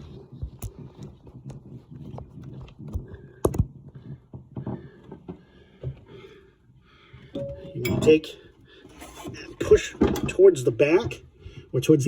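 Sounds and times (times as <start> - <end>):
handling knocks and rubbing: 7.4 - 8.4.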